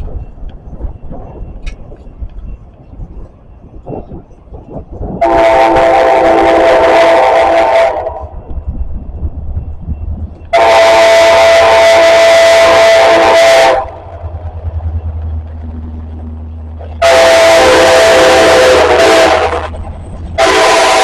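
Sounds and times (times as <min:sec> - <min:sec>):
low rumble of approaching train: 0:00.0 - 0:21.0
locomotive air horn blasts: 0:05.2 - 0:08.3, 0:10.5 - 0:14.1, 0:16.8 - 0:21.0.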